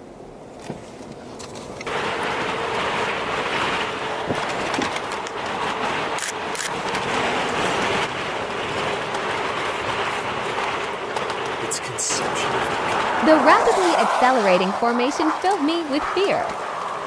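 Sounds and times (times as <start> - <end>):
loud rushing noise: 11.5 - 17.0.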